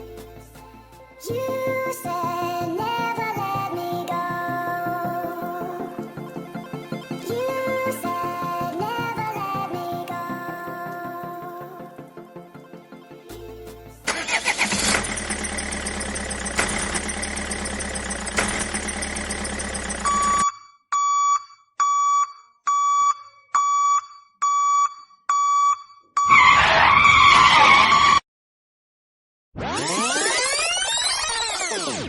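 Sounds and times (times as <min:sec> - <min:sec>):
truck engine clattering: 0:14.1 - 0:20.4
reversing alarm beeping: 0:14.2 - 0:26.7.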